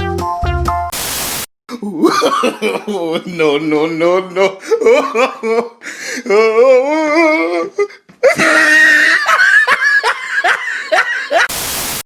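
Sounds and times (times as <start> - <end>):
short burst of hiss: 0.9 - 1.5, 11.5 - 12.0
person laughing hard: 1.8 - 3.6, 4.4 - 11.5.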